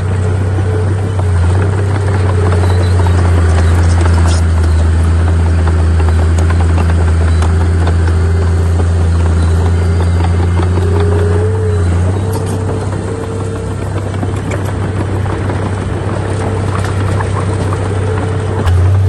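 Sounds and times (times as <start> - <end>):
diesel engine droning under load: 0.0 - 19.0
light clatter: 0.0 - 19.0.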